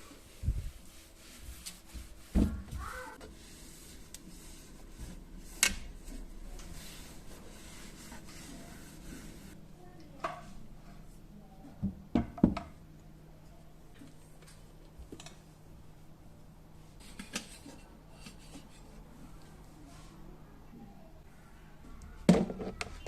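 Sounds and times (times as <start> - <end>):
utensils rubbing and rustling: 3.0 - 9.6.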